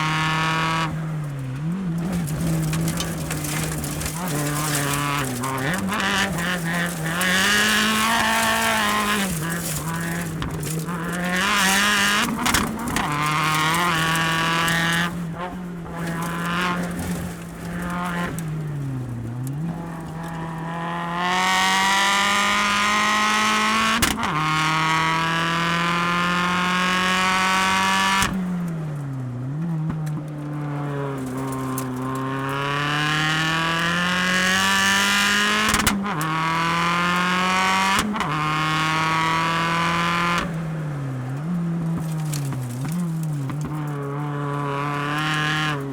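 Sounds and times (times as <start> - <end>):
race car engine revving: 0.0 - 45.9
sharp engine cracks: 1.2 - 20.4.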